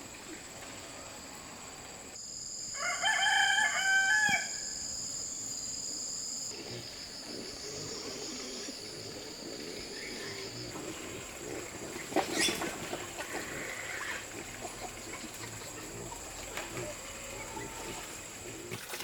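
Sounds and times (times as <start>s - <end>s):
rooster crowing: 2.8s - 4.8s.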